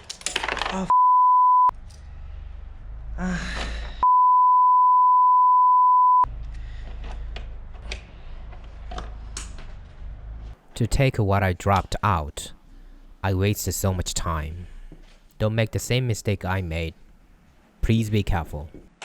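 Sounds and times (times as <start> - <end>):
censor bleep tone: 0.9 - 1.7, 4.0 - 6.3.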